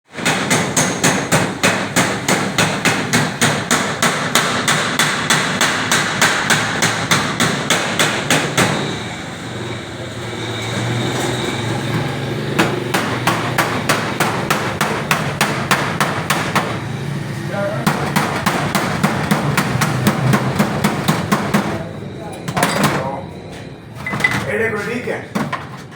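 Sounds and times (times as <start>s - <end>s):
hammer blows on sheet iron: 0.1s - 9.0s, 12.6s - 16.8s.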